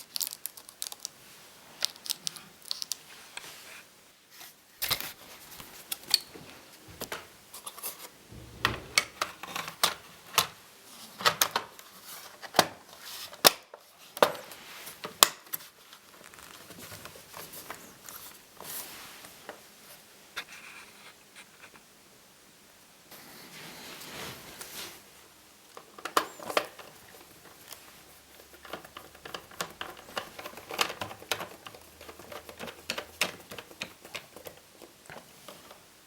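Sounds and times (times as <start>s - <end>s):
clicks and scraping on laptop parts: 25.8s - 35.8s.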